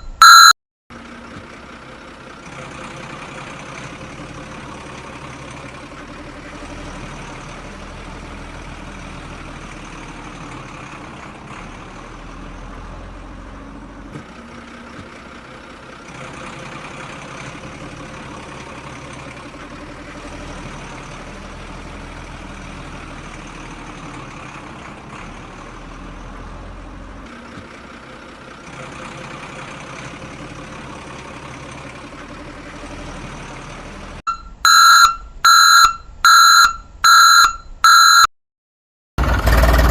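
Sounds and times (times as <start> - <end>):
loud electronic beeping: 0.0 - 0.6, 34.3 - 38.3
tractor motor running: 0.0 - 38.2, 39.2 - 39.9.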